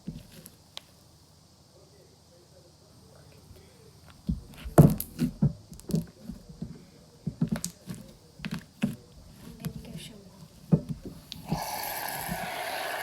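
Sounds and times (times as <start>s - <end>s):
slime squeezed by hand: 11.4s - 13.0s.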